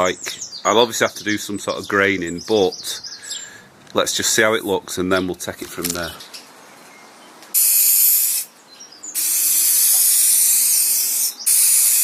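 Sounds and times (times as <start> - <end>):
spray hissing: 7.5 - 8.5, 9.2 - 12.0.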